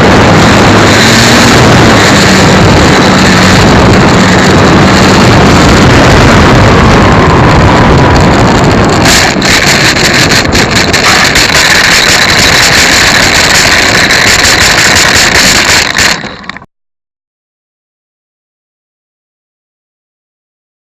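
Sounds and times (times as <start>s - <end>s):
loud wind rush: 0.0s - 16.6s
model airplane motor: 0.0s - 16.7s.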